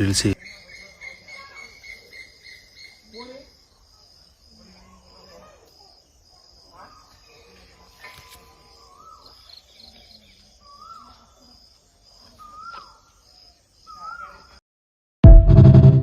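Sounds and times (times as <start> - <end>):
insects chirring: 0.2 - 14.6
loud music: 15.2 - 16.0.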